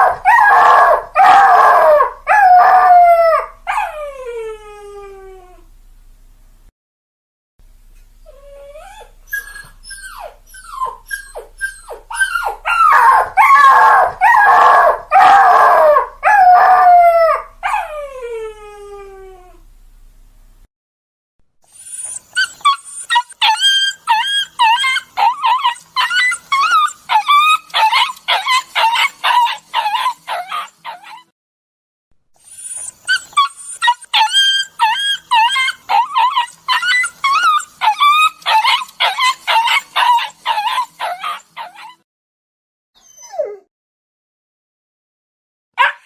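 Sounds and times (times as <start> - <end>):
dogs howling: 0.0 - 5.2, 10.2 - 19.3, 23.1 - 31.2, 33.1 - 42.0
dogs whining and crying: 0.0 - 5.6, 8.2 - 19.6, 21.7 - 31.3, 32.4 - 42.0, 43.0 - 43.7, 45.8 - 46.0
high whimpering yelps: 0.0 - 5.6, 8.3 - 19.6, 21.8 - 31.3, 32.5 - 42.0, 43.0 - 43.7, 45.8 - 46.0.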